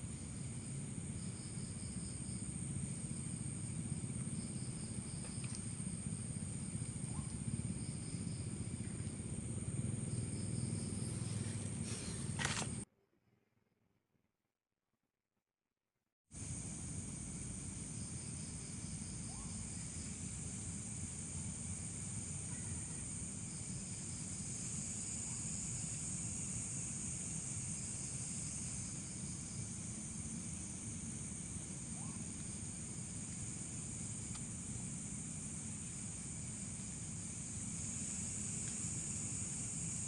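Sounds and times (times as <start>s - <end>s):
low background rumble: 0.0s - 12.8s
night insects chirping: 0.0s - 12.8s, 16.3s - 40.0s.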